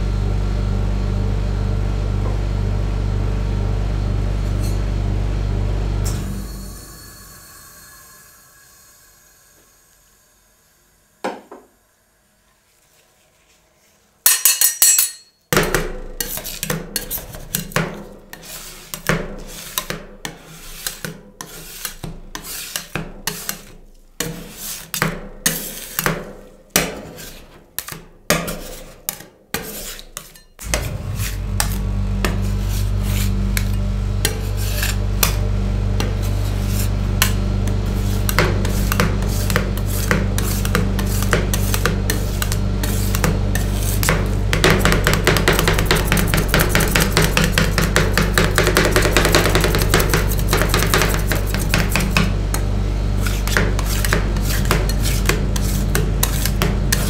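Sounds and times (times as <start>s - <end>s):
steady low hum: 0.0s - 11.6s, 30.6s - 57.0s
metal spatulas tapping on a plate: 14.3s - 15.8s
spatulas scraping a metal plate: 16.2s - 35.4s, 36.0s - 52.3s, 53.2s - 57.0s.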